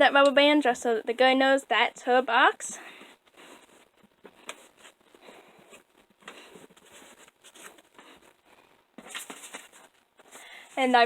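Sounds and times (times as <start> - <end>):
rustling: 2.8 - 11.0.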